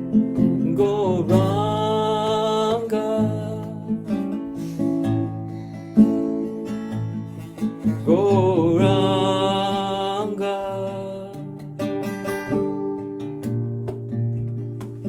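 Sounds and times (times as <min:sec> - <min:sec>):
plucked string accompaniment: 0:00.0 - 0:15.0
person singing: 0:00.3 - 0:04.9, 0:07.8 - 0:11.7.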